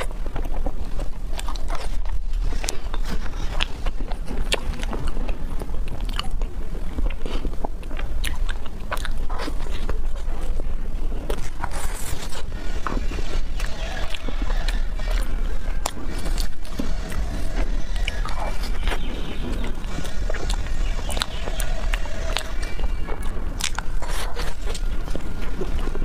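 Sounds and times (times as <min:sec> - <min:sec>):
biting and chewing: 0:00.0 - 0:26.0
steady low hum: 0:00.0 - 0:26.0.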